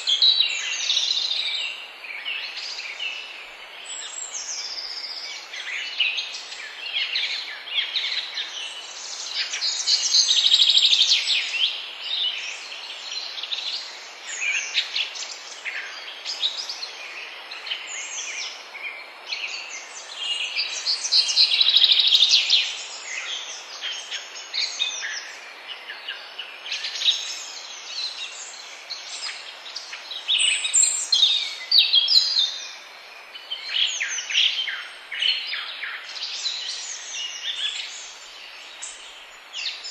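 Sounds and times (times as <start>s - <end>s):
chorus of birds singing: 0.0s - 39.9s
faint steady hiss: 0.0s - 39.9s.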